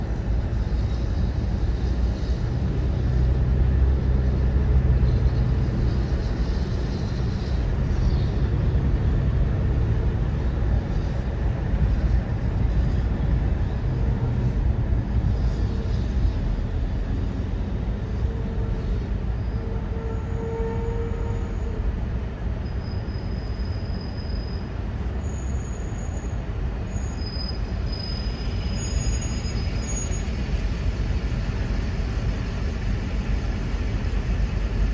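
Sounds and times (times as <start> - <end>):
thin high squeals: 22.6 - 30.8.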